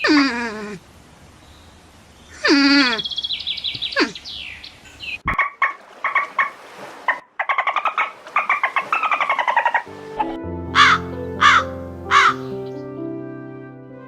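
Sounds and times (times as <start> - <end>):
falling bird call: 2.3 - 9.9, 10.8 - 12.5
bird chirping rapidly: 3.0 - 6.3.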